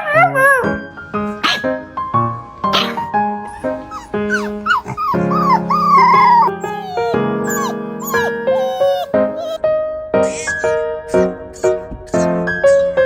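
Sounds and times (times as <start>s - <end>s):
dog howling and whining: 2.7s - 9.6s.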